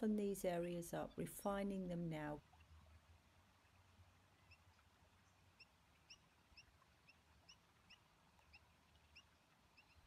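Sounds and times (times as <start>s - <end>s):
faint high bird chirps: 4.4s - 10.0s.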